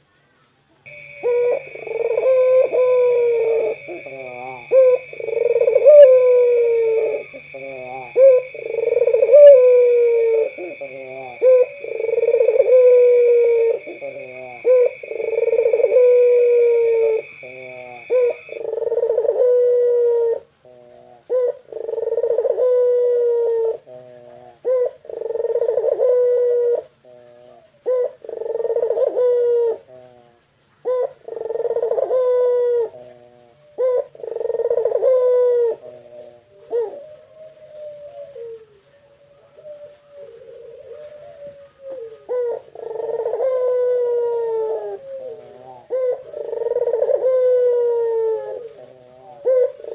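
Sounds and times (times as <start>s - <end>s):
steady high whine: 0.9s - 18.6s
dove cooing: 0.9s - 49.9s.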